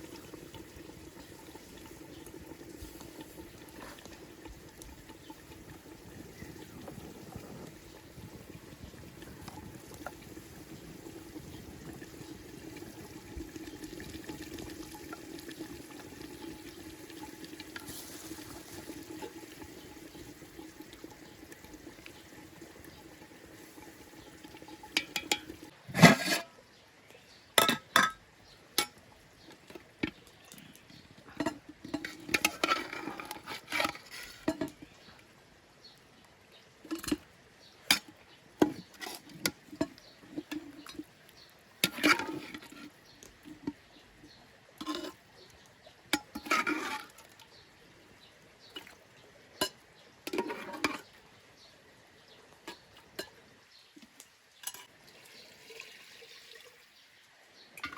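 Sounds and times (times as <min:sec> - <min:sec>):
liquid bubbling in a pot: 0:00.0 - 0:57.9
utensils clinking against cookware: 0:24.8 - 0:26.5, 0:27.6 - 0:28.2, 0:31.3 - 0:34.8, 0:41.8 - 0:42.9, 0:46.2 - 0:47.2, 0:49.6 - 0:51.1, 0:54.6 - 0:54.9.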